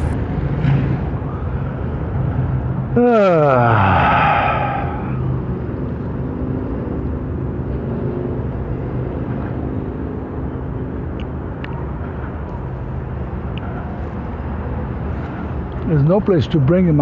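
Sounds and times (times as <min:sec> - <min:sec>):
low engine hum: 0:00.0 - 0:00.2.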